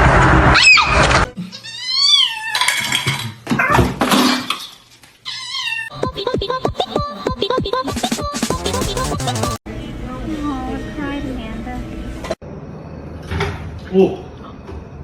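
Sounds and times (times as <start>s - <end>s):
music with quick beat: 5.9s - 9.6s.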